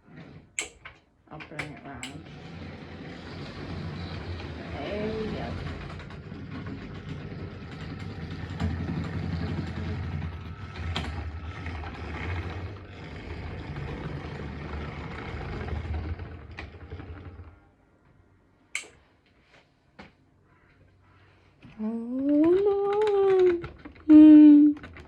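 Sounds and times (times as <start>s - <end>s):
model train motor whirr: 2.0s - 17.6s
sharp click: 18.8s - 19.0s.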